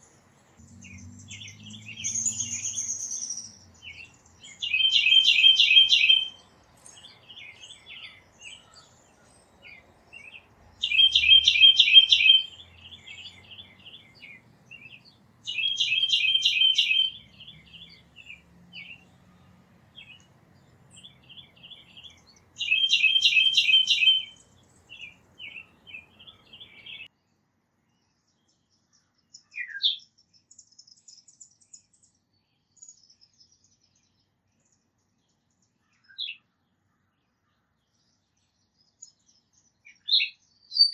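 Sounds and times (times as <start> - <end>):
songbird trilling: 0.7 - 19.1, 20.9 - 27.1.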